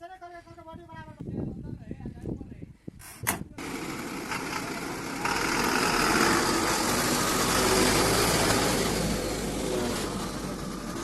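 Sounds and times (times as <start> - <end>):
diesel engine running: 3.6 - 11.0.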